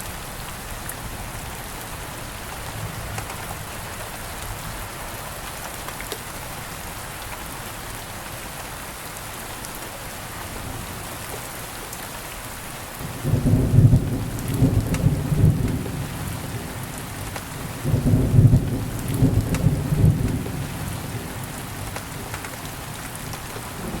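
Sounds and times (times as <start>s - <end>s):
steady rain falling: 0.0s - 24.0s
low thunder rolling: 13.0s - 22.3s, 23.7s - 24.0s.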